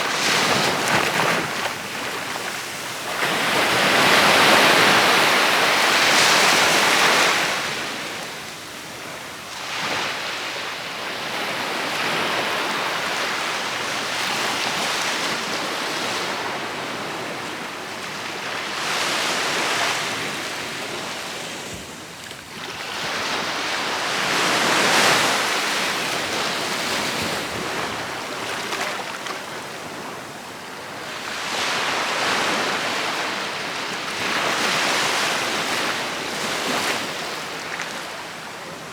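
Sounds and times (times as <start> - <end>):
waves breaking on beach: 0.0 - 38.9.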